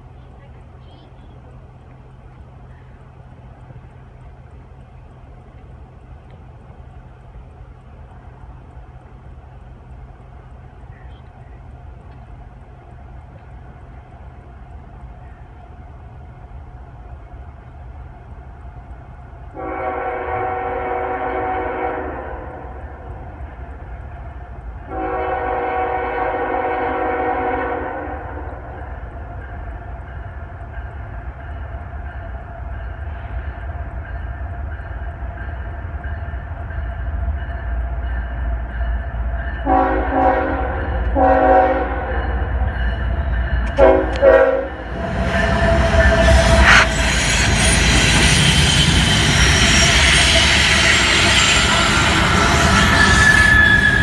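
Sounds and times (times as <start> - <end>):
low rumble of locomotives: 0.0 - 54.0
locomotive air horn: 19.6 - 22.8, 24.9 - 28.4, 39.6 - 42.1, 43.7 - 47.6.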